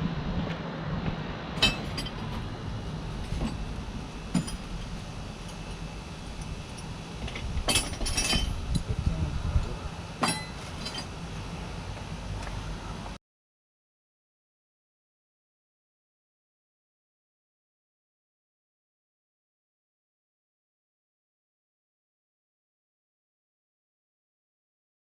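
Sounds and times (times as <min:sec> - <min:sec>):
low steady hum: 0:00.0 - 0:13.2
metal tools clinking: 0:04.3 - 0:04.8, 0:05.4 - 0:08.9, 0:10.2 - 0:11.2.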